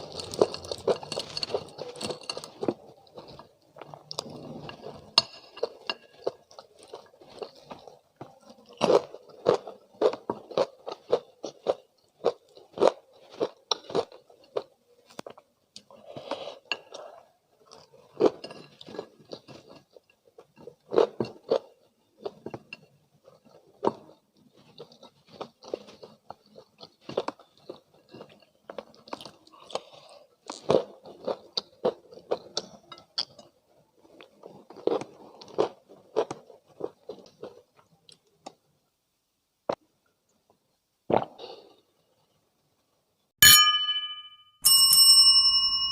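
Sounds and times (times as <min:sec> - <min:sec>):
crunchy chewing: 0:00.0 - 0:38.6.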